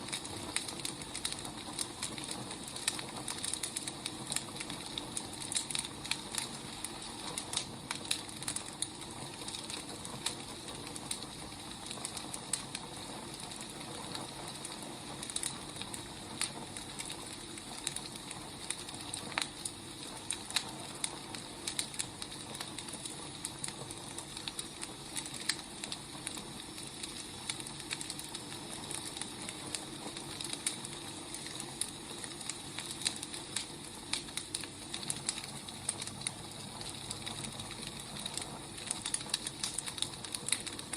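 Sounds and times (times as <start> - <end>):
firewood crackling and popping: 0.0 - 40.9
steady hiss: 0.0 - 40.9.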